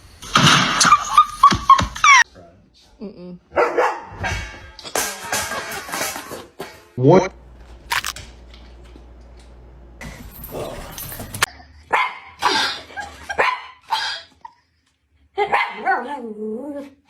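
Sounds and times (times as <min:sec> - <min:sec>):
dog barking: 0:03.5 - 0:04.3, 0:11.9 - 0:14.3, 0:15.4 - 0:16.1.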